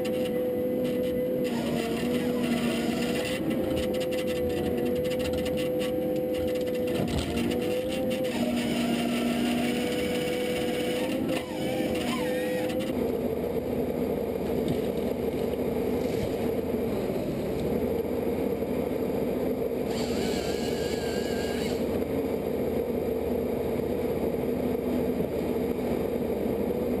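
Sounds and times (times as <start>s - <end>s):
machine engine humming: 0.0s - 27.0s
brief higher whine: 19.9s - 21.9s.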